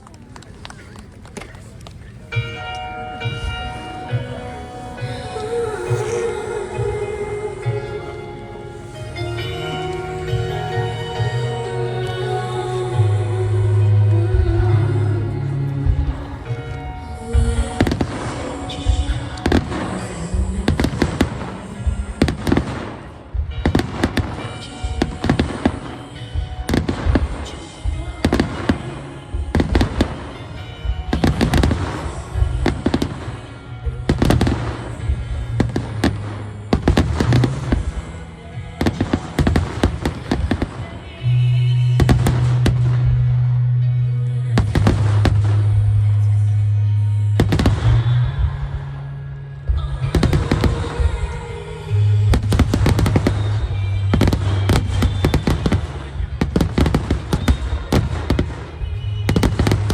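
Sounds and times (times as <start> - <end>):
loud low hum: 1.7 - 59.9
music: 2.0 - 59.9
fireworks bursting with bangs: 15.9 - 41.2, 42.0 - 43.6, 44.6 - 45.9, 47.4 - 48.8, 49.8 - 59.9.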